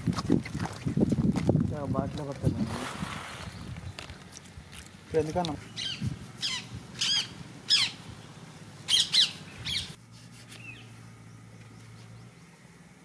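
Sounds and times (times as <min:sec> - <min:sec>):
birds calling: 0:02.7 - 0:13.0.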